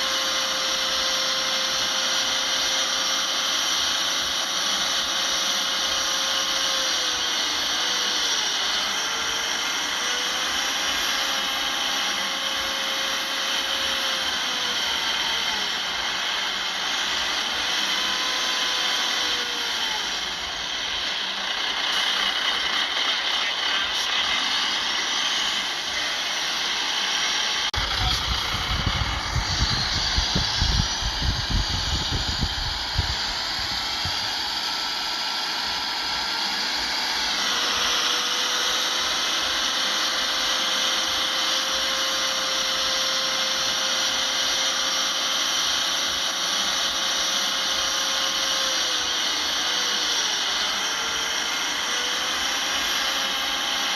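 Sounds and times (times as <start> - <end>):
bulldozer diesel engine running: 0.0 - 40.6
high mechanical whine: 0.0 - 53.9.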